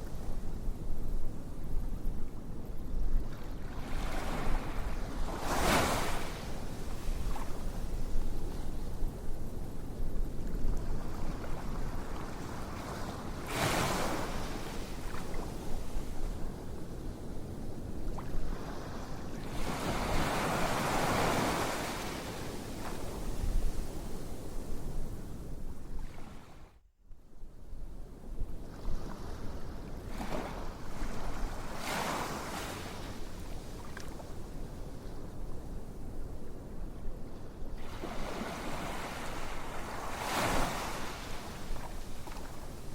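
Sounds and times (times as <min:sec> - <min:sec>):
ocean waves washing onto shore: 0:03.8 - 0:07.6, 0:11.0 - 0:16.2, 0:18.5 - 0:24.0, 0:30.3 - 0:33.4, 0:37.8 - 0:42.9.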